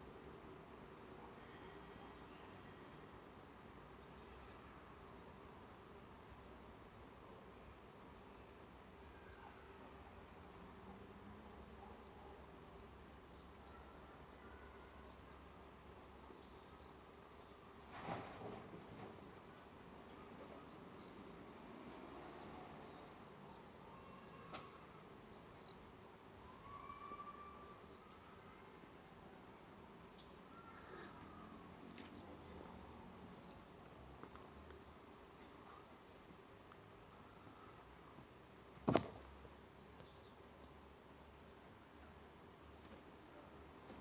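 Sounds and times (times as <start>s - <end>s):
small birds chirping: 8.4s - 44.0s
soft thump: 38.8s - 39.4s.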